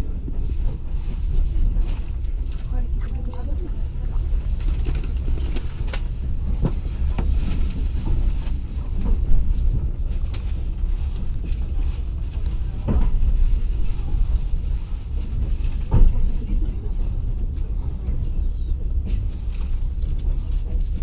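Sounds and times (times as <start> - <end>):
train carriage rumbling on track: 0.0 - 21.0.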